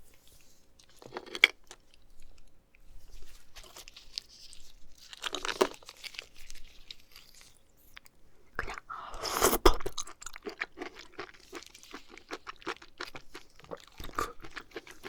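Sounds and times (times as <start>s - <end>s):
crinkling and crunching handling noises: 0.0s - 8.6s.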